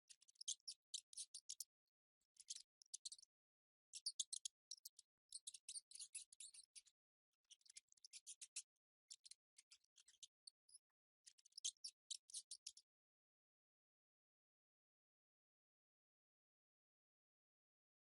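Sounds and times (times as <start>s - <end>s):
mice chirping: 4.0s - 6.8s.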